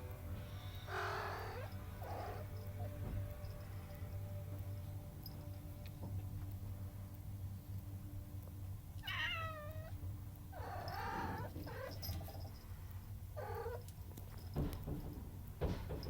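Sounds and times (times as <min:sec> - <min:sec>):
cat meowing: 0:00.9 - 0:02.6, 0:09.0 - 0:12.0, 0:13.4 - 0:13.8.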